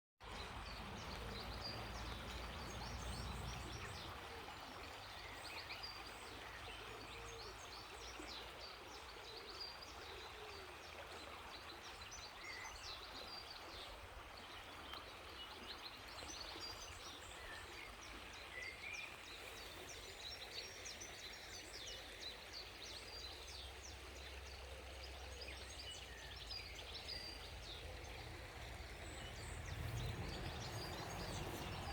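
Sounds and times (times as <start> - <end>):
river water rushing: 0.2 - 8.8, 23.3 - 31.9
birds chirping: 22.6 - 31.9
low rumble: 27.4 - 31.9.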